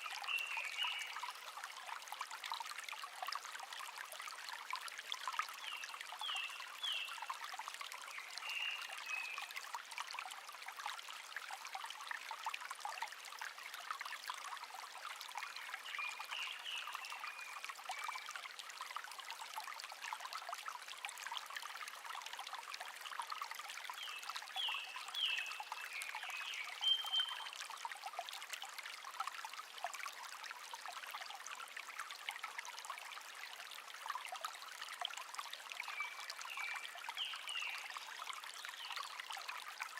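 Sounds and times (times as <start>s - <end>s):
stream trickling and babbling: 0.0s - 39.9s
songbird chirping: 24.0s - 27.5s.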